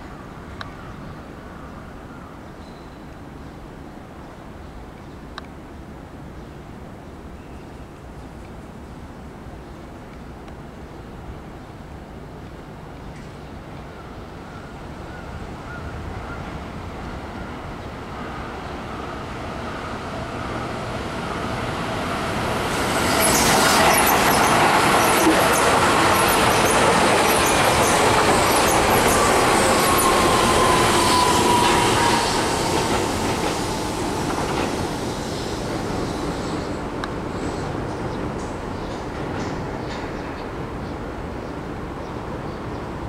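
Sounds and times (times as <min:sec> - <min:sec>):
train whine: 0:14.7 - 0:40.6
train wheel-on-rail clatter: 0:20.2 - 0:41.0.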